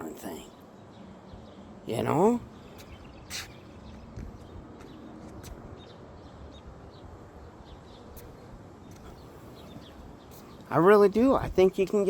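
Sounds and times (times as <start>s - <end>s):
bird chirps: 0.3s - 5.0s.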